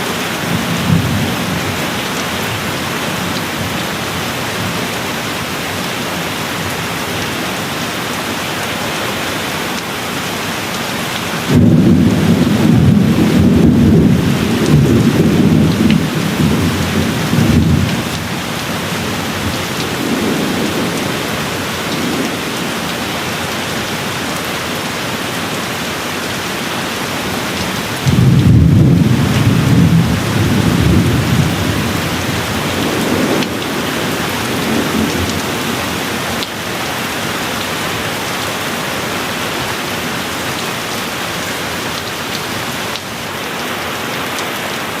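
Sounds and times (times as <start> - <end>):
steady rain: 0.0 - 45.0
rolling thunder: 11.5 - 22.8, 27.3 - 36.2.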